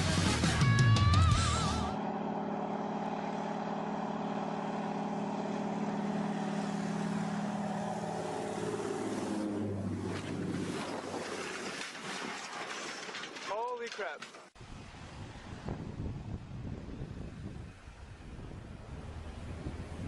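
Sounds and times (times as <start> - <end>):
music: 0.0 - 2.0
aircraft engine drone: 1.2 - 11.2, 14.6 - 20.0.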